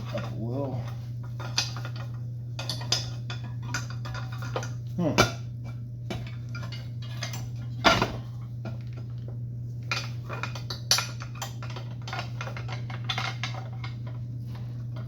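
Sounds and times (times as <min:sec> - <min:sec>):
steady low hum: 0:00.0 - 0:15.0
metal parts clinking and scraping: 0:09.9 - 0:14.2.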